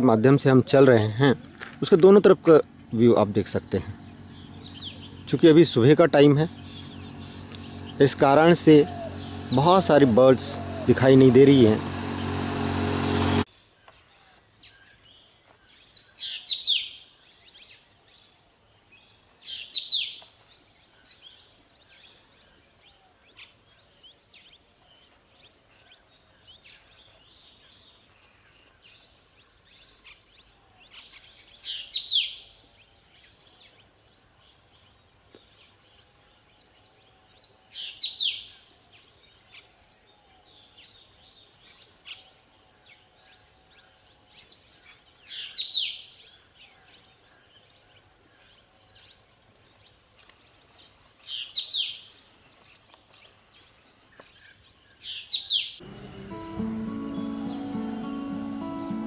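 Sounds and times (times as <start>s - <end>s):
bird calling sharp high notes: 6.1s - 13.4s, 55.8s - 59.0s
steady high hiss: 55.8s - 59.0s.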